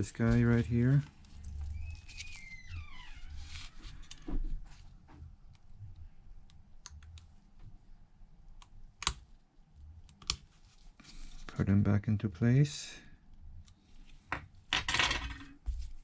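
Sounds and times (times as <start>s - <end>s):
high falling squeak: 1.7s - 3.7s.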